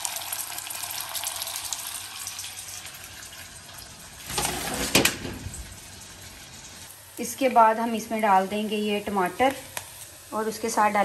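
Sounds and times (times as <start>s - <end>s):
onions sizzling in oil: 5.5s - 11.0s.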